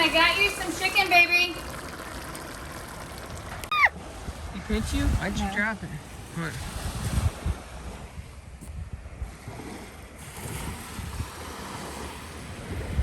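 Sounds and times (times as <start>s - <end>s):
faint surf: 0.0s - 13.0s
wind buffeting microphone: 0.0s - 13.0s.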